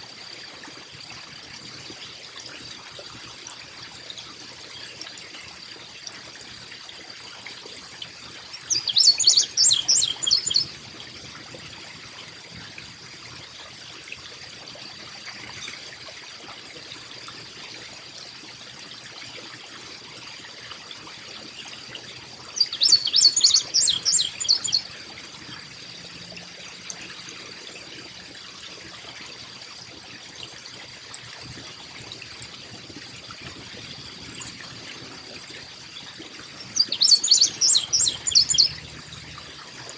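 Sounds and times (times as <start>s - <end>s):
trickle of running water: 0.0s - 39.9s
chickadee calling: 8.7s - 10.7s, 22.6s - 24.9s, 36.6s - 38.8s.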